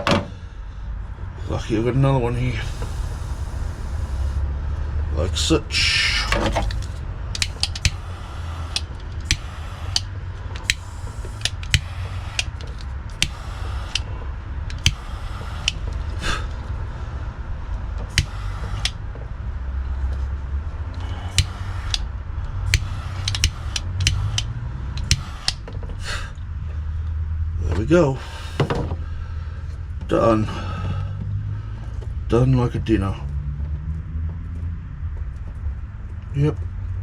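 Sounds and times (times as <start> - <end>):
steady low rumble: 0.0 - 37.0
clicks and taps of tools: 6.3 - 14.1, 14.7 - 16.2, 18.0 - 19.0, 21.3 - 22.1, 22.7 - 26.0.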